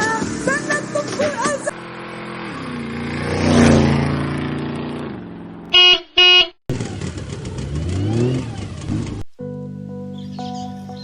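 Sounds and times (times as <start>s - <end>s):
vehicle engine passing by: 0.3s - 5.7s, 6.7s - 9.3s
horn beeps: 5.7s - 6.6s.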